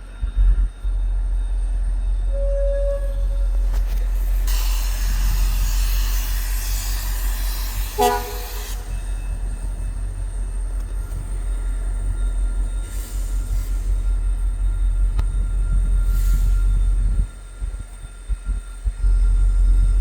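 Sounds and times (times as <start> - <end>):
train horn blast: 2.3 - 9.4
hiss: 3.2 - 9.6, 12.6 - 19.0.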